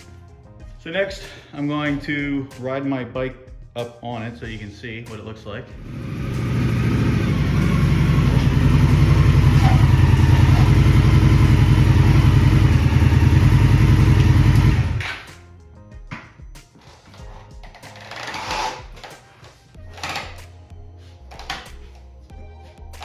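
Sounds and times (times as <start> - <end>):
motorcycle engine idling: 5.8 - 15.3.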